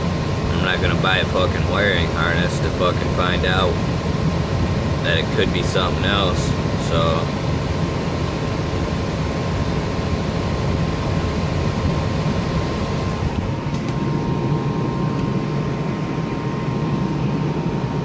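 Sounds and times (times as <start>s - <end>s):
furnace blower fan running: 0.0s - 18.0s
thin whine: 0.0s - 18.0s.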